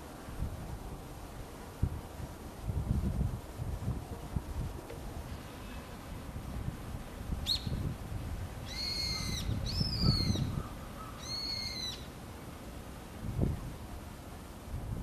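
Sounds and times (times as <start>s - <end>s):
bird calling: 8.6s - 12.2s.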